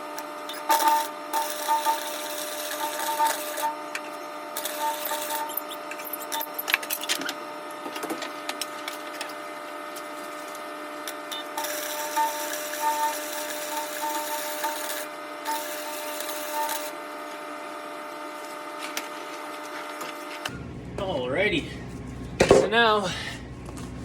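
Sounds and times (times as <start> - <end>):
arc welder crackling: 0.0 - 17.6
welder steady hum: 0.0 - 24.0.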